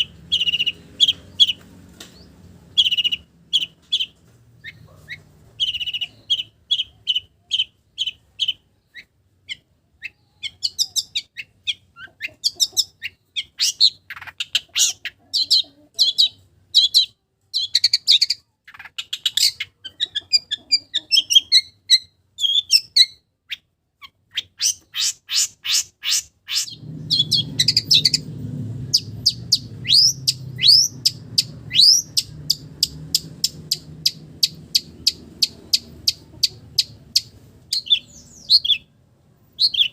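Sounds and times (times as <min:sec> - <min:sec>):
low steady rumble: 0:26.7 - 0:39.6
bird singing chirps and whistles: 0:29.0 - 0:32.6.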